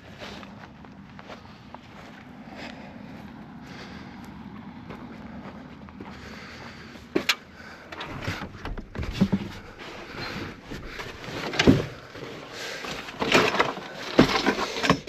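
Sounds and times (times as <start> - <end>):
camp gear knocking and clunking: 7.0 - 15.0.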